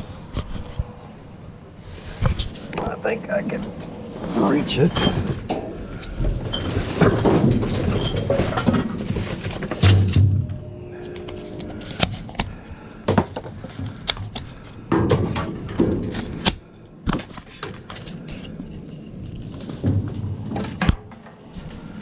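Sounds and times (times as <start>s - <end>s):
junk clunking and rattling: 3.5s - 18.6s, 19.5s - 21.9s.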